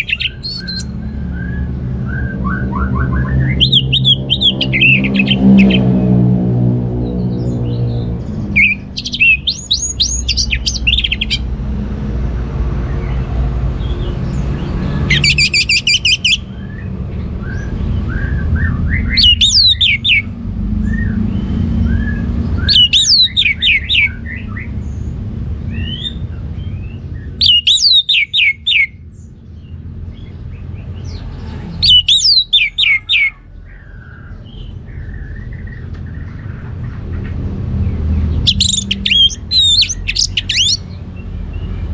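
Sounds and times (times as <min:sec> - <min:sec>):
thrush singing: 0:38.2 - 0:40.9.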